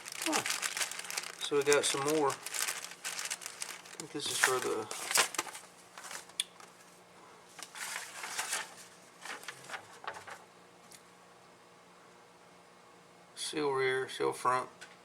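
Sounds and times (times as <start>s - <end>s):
plastic packaging rustling: 0.0s - 6.7s, 7.6s - 10.4s.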